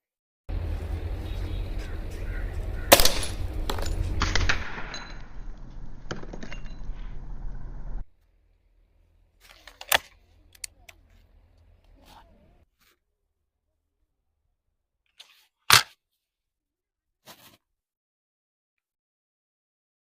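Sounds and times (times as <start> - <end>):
air rifle shots: 2.8 - 5.2.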